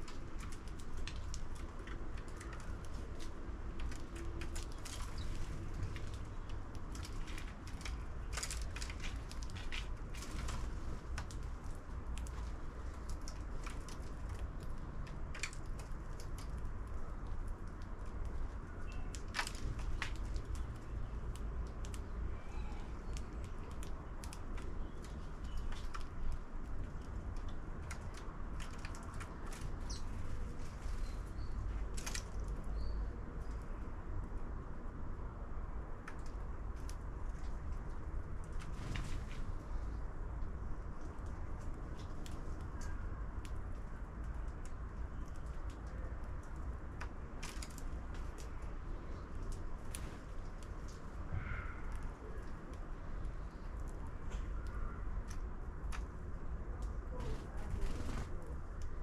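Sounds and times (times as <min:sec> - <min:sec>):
faint bird chirps: 0:22.4 - 0:23.2.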